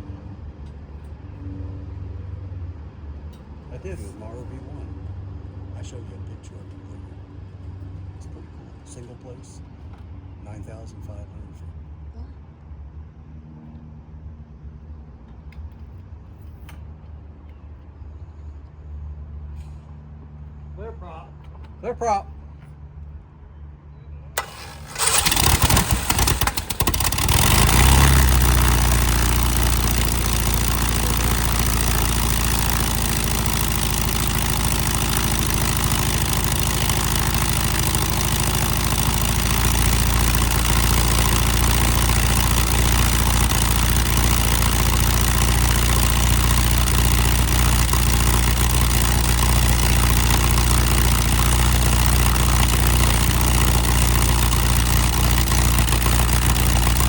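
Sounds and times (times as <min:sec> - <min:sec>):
aircraft engine running: 0:24.4 - 0:57.0
engine starter cranking: 0:24.4 - 0:57.0.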